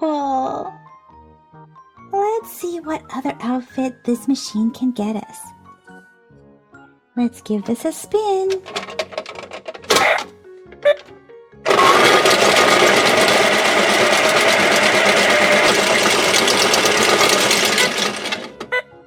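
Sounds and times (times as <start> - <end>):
toy washing machine whirring: 8.5 - 11.1, 11.7 - 18.8.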